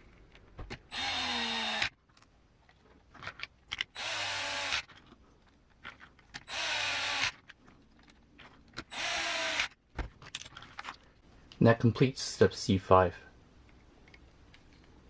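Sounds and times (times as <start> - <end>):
electric screwdriver bursts: 0.9 - 1.9, 4.0 - 4.9, 6.5 - 7.4, 8.9 - 9.7.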